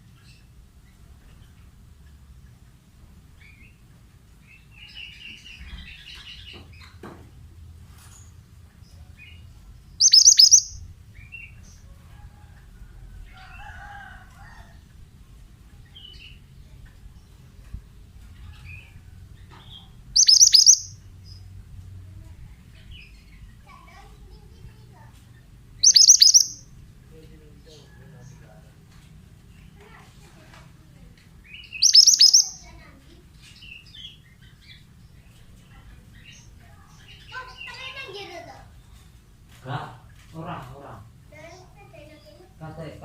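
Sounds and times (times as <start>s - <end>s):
bird shrill rapid chirps: 10.0s - 10.9s, 20.2s - 21.0s, 25.8s - 26.7s, 31.6s - 32.7s
bird twittering: 10.0s - 10.9s, 19.7s - 21.4s, 25.8s - 26.8s, 31.4s - 32.8s.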